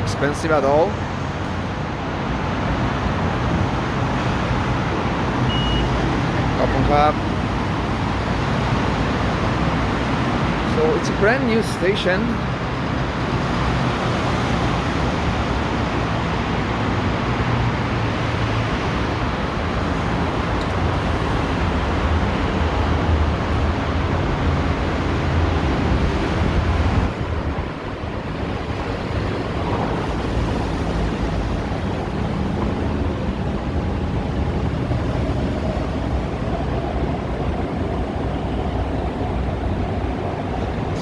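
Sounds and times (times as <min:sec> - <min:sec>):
traffic rumble: 0:00.0 - 0:41.0.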